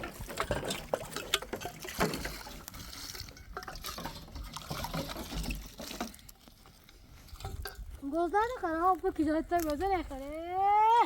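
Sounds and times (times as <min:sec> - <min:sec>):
liquid stirred and splashed in pot: 0:00.0 - 0:06.2.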